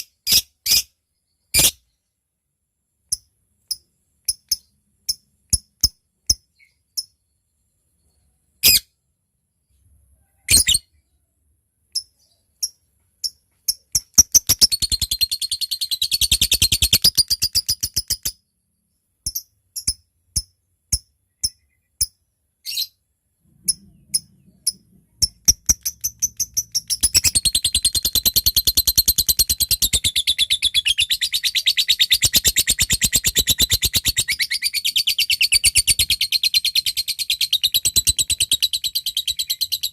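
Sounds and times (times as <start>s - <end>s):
lovebird ticking and trilling: 3.1s - 7.2s, 11.9s - 18.4s, 19.2s - 22.9s, 23.6s - 39.9s.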